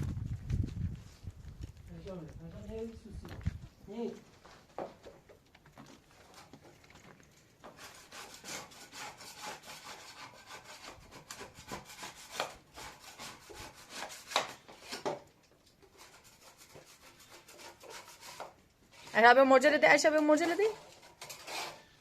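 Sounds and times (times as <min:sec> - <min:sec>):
rapid scraping strokes: 0:15.9 - 0:19.3.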